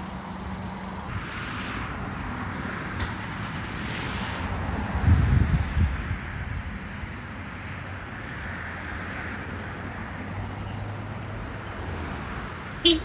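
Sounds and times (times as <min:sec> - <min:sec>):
truck engine running: 0:00.0 - 0:01.1.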